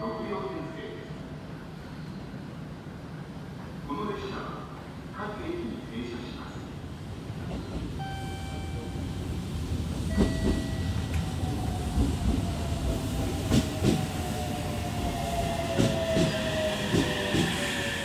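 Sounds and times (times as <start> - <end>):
train wheels clicking over rail joints: 15.7 - 17.6.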